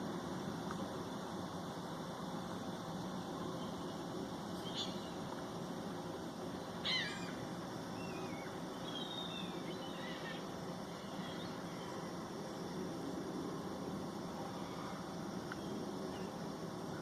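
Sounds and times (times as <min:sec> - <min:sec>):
steady background hiss: 0:00.0 - 0:17.0
birds calling: 0:03.5 - 0:05.2, 0:06.8 - 0:12.0.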